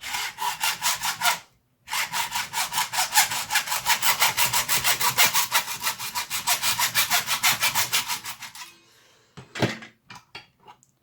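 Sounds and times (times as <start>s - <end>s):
hacksaw cutting plastic: 0.0s - 8.7s.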